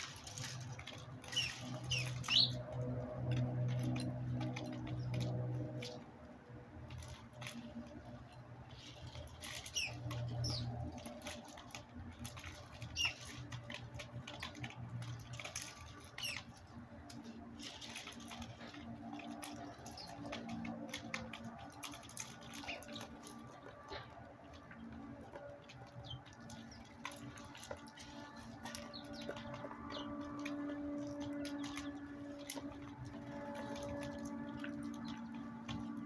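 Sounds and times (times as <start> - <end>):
birds down-sliding chirps: 1.2 - 2.6, 8.7 - 11.1, 12.4 - 13.5, 15.4 - 16.6.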